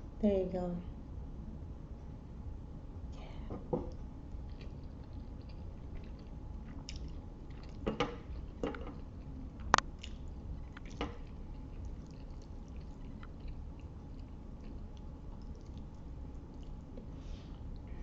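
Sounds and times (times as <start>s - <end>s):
chewing with wet mouth sounds: 3.9s - 18.0s.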